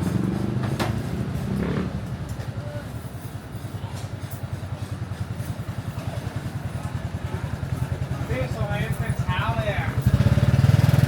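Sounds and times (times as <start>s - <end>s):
motorcycle engine idling: 4.4s - 11.0s.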